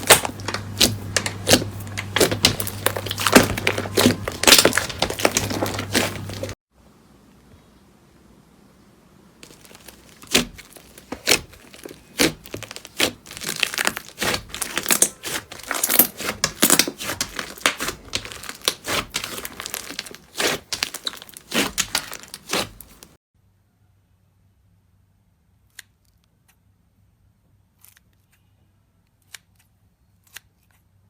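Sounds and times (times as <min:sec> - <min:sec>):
slime crackling and popping: 0:00.0 - 0:06.6, 0:09.4 - 0:23.2.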